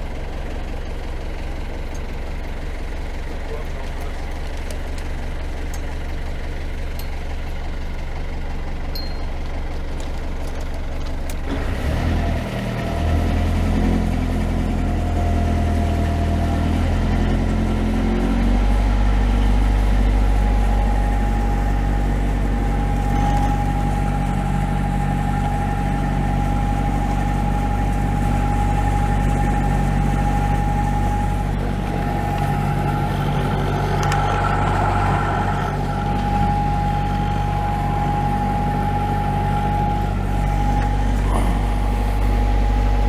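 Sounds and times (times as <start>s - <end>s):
diesel engine running: 0.0s - 43.0s
steady whine: 18.6s - 43.0s.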